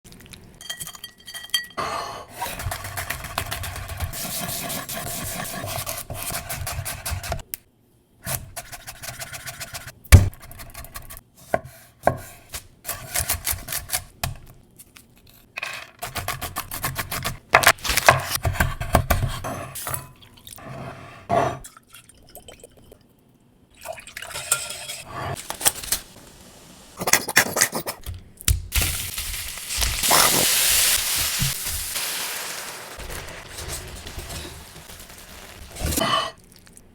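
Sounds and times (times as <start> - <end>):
dishes and utensils clinking: 0.6 - 1.9.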